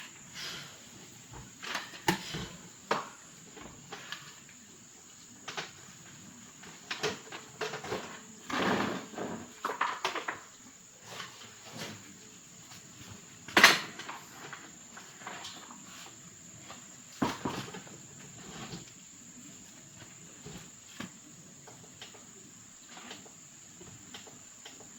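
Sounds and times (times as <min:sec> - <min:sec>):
crickets droning: 0:00.0 - 0:24.9
objects knocking and clattering: 0:17.2 - 0:18.0.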